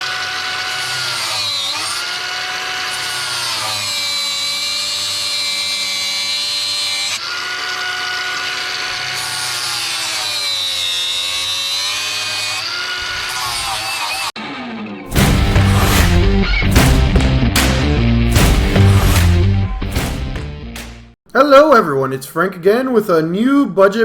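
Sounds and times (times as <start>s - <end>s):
power drill motor whining: 0.0s - 15.0s.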